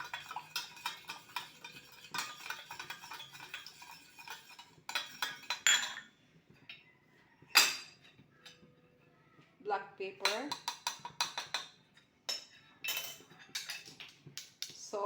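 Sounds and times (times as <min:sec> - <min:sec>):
metal spoon scraping a bowl: 0:00.0 - 0:05.9
kitchenware clatter: 0:00.0 - 0:08.7, 0:10.2 - 0:14.8.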